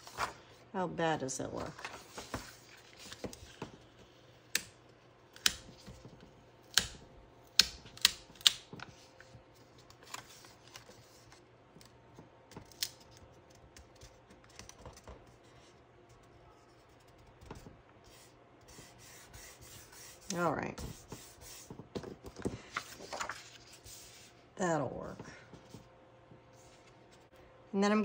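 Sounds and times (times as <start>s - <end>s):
paper rustling: 0.0s - 0.5s, 1.6s - 3.8s, 8.8s - 11.4s, 20.8s - 24.3s.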